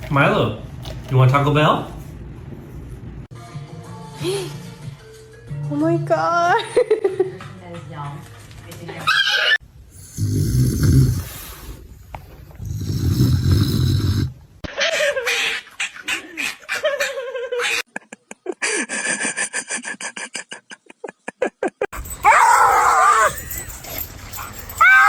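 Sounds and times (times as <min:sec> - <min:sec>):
dog whining: 0:09.1 - 0:09.6, 0:22.0 - 0:25.0.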